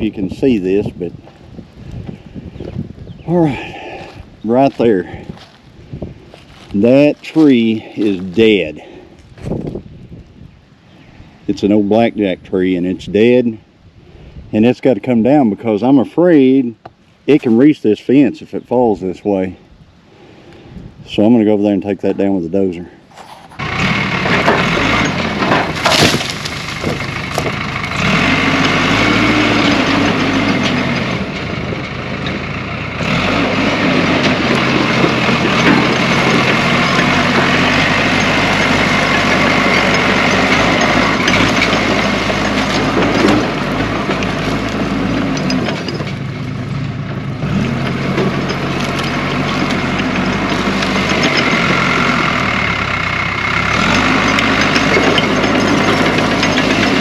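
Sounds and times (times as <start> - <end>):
bulldozer diesel engine: 0.0 - 13.7, 20.6 - 57.0
sharp crack: 24.2 - 28.3.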